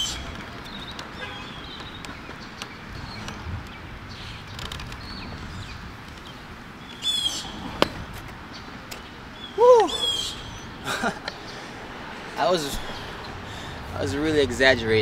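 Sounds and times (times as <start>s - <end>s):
bird chirps: 0.0s - 7.6s, 8.5s - 11.6s
bird call rising and falling: 0.0s - 11.8s
outdoor background noise: 0.0s - 15.0s.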